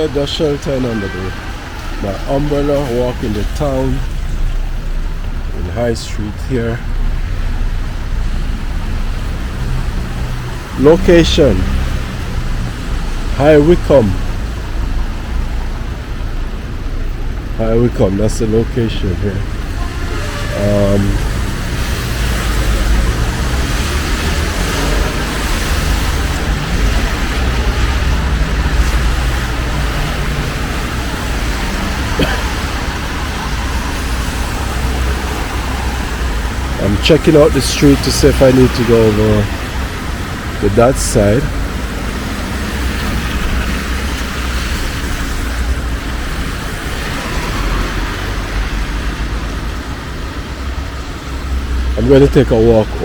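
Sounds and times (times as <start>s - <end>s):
traffic on a wet road: 0.0s - 53.0s
rain on an umbrella: 21.3s - 36.8s.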